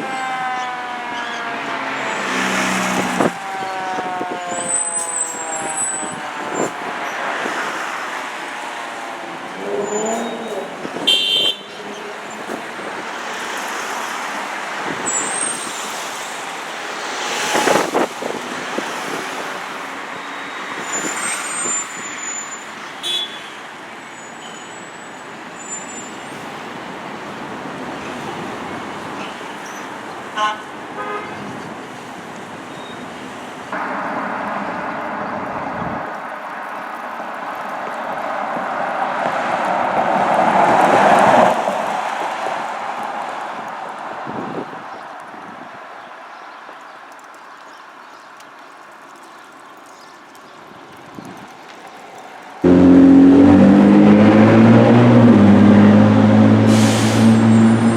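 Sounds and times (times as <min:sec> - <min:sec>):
road traffic passing: 0:00.0 - 0:57.9
car horn: 0:09.7 - 0:11.8, 0:23.0 - 0:23.6, 0:30.4 - 0:31.5, 0:52.6 - 0:57.9.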